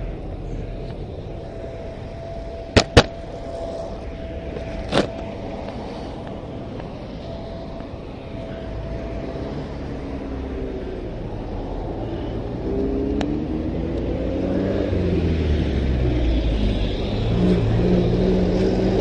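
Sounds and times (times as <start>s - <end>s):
car engine and road noise: 0.0s - 19.0s
faint steady whine: 0.0s - 19.0s.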